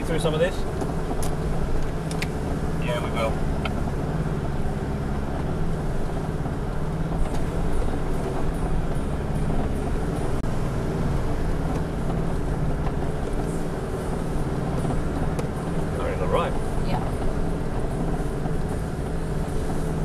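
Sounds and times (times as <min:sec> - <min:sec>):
vehicle engine at low revs: 0:00.0 - 0:20.0.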